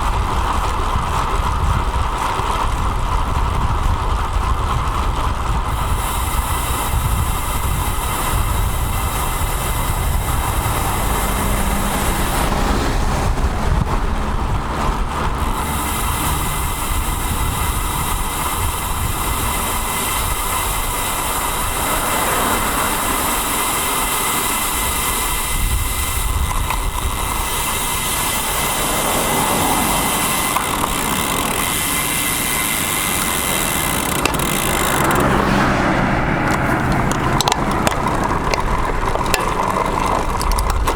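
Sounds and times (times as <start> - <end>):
road and traffic noise: 0.0 - 40.9
wind rumble on microphone: 0.0 - 40.9.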